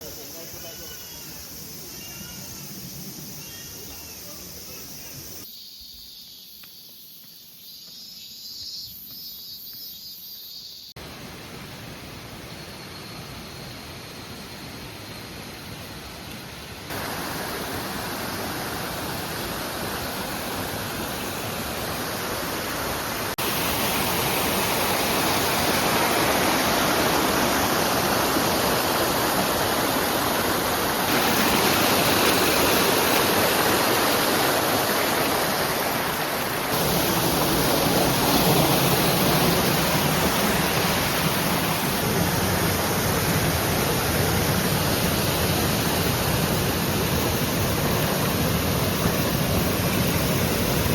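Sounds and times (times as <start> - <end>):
stream water cascading over rock: 11.0 - 50.9.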